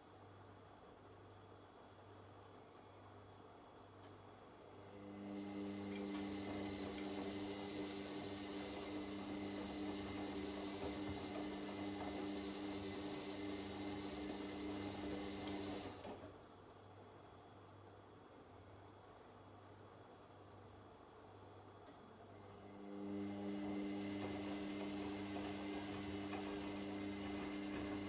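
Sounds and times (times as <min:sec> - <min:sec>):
washing machine running: 0:04.7 - 0:16.3, 0:22.4 - 0:28.0.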